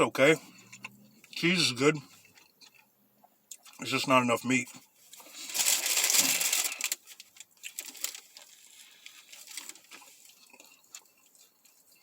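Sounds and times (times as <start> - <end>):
person chewing: 0.4 - 1.4, 2.0 - 3.9, 6.3 - 12.0.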